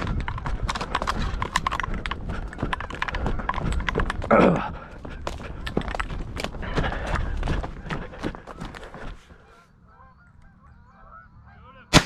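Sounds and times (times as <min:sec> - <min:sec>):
footsteps through dry stubble: 0:00.0 - 0:09.6.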